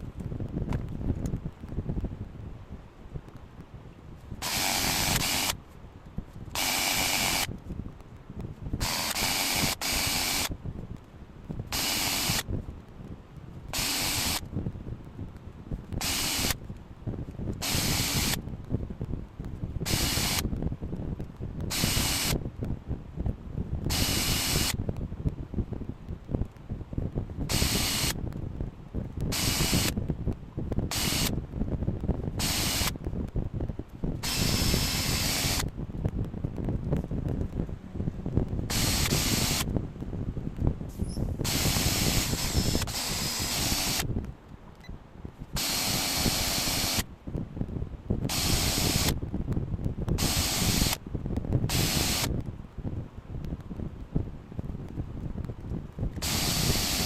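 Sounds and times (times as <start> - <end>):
steady low rumble: 0.0 - 57.0
hissing jet bursts: 4.4 - 5.6, 6.6 - 7.5, 8.8 - 10.5, 11.7 - 12.4, 13.8 - 14.4, 16.0 - 16.6, 17.6 - 18.4, 21.7 - 22.4, 29.3 - 30.0, 30.9 - 31.3, 32.4 - 32.9, 34.2 - 35.7, 38.7 - 39.7, 41.4 - 44.1, 45.6 - 47.0, 48.3 - 49.1, 50.2 - 51.0, 51.7 - 52.3, 56.2 - 57.0.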